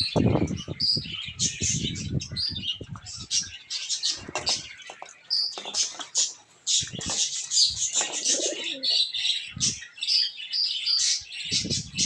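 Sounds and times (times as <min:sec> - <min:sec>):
pigeons cooing: 0:00.0 - 0:09.9
small birds chirping: 0:00.0 - 0:12.0.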